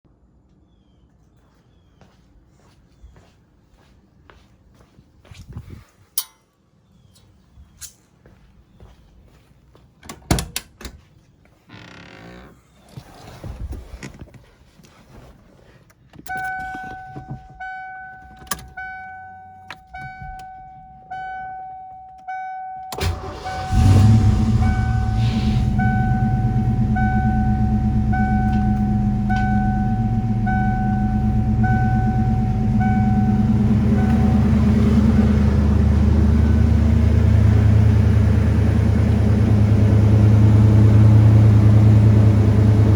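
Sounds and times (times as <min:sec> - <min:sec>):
dashboard warning chime: 0:16.2 - 0:38.2
car engine idling: 0:23.0 - 0:42.9.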